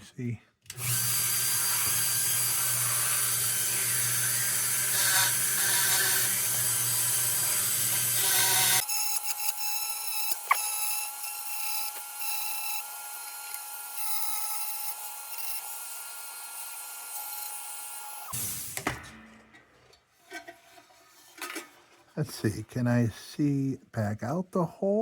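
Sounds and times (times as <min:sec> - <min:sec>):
rotary tool grinding metal: 0:00.7 - 0:18.4.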